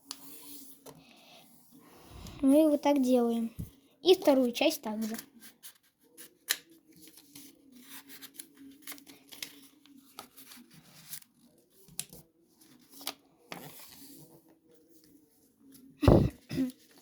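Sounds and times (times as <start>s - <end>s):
paper being folded and creased: 4.2s - 14.3s.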